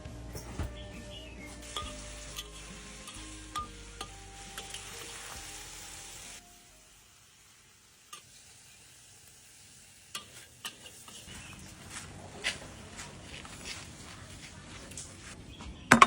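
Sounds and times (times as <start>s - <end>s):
food sizzling in a pan: 1.5s - 13.2s.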